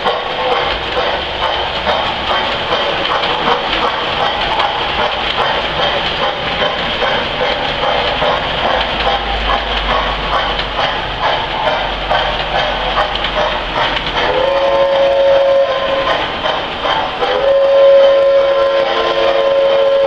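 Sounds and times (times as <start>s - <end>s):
model train rolling clatter: 0.0s - 20.0s
locomotive whistle blasts: 14.3s - 16.3s, 17.2s - 20.0s.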